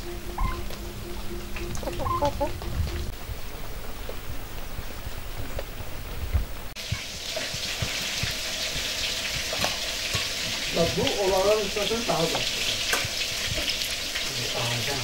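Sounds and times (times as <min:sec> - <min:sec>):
short wavering call: 0:00.0 - 0:03.1
low rumble: 0:00.0 - 0:06.7
food sizzling in hot oil: 0:06.8 - 0:15.0.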